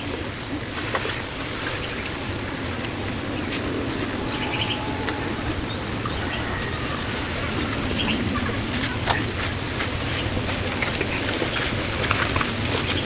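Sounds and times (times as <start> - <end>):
rushing background noise: 0.0 - 13.0
pulsing insect trill: 3.0 - 8.8.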